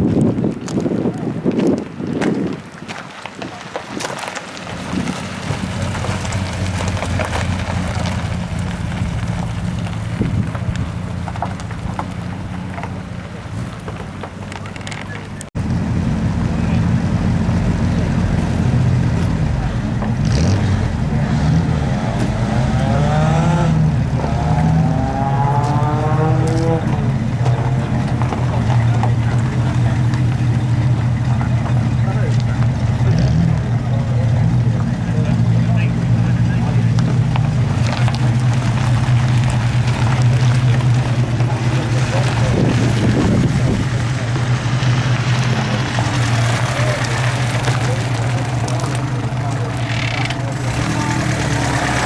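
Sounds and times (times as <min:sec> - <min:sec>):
engine droning: 0:03.0 - 0:52.0.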